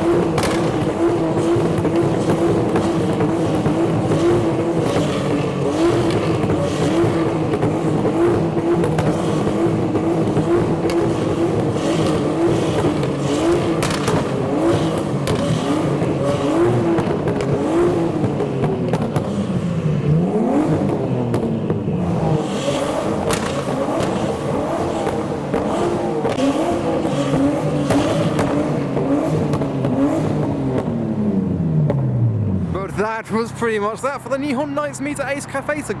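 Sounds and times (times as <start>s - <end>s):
exhaust pops and cracks: 0.0s - 31.2s
car engine revving: 0.0s - 36.0s.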